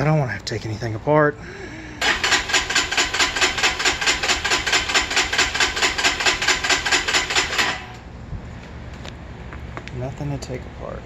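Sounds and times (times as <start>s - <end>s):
motorcycle electric starter cranking: 2.0s - 8.1s.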